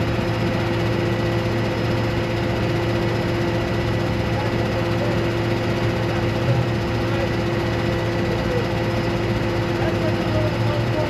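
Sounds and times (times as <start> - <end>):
vehicle engine droning: 3.6 - 11.0.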